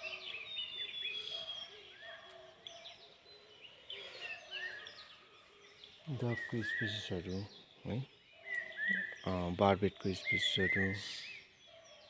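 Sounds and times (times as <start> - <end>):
birds chirping: 0.0 - 12.0
low hooting bird call: 8.4 - 9.3.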